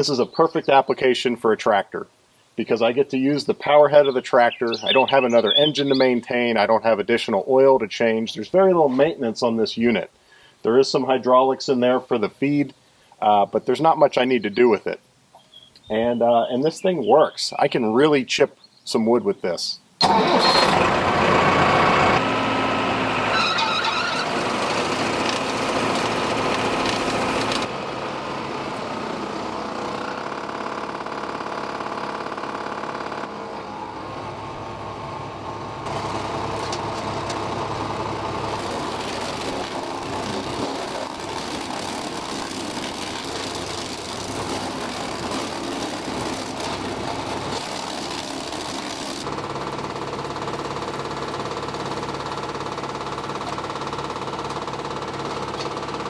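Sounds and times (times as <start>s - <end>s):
wood chipper running: 20.0s - 56.0s.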